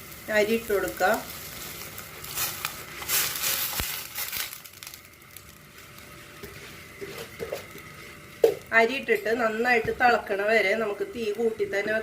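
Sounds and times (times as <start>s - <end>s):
rice pouring into a pot: 0.0s - 8.7s
boiling water hissing: 0.0s - 12.0s.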